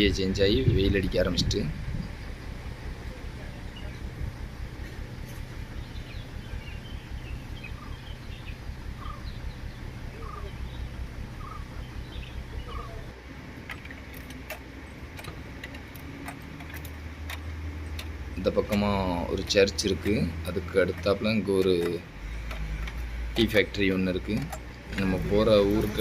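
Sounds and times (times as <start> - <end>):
low rumble: 0.0 - 20.8
faint bird chirps: 1.9 - 13.2
bird call: 5.8 - 13.2
sharp ticks: 13.6 - 26.0.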